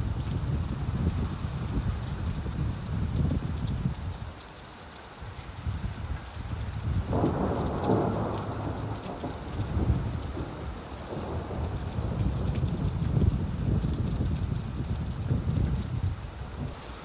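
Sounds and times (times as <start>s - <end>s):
steady rain: 0.0s - 17.0s
thunder rolling: 7.0s - 15.9s.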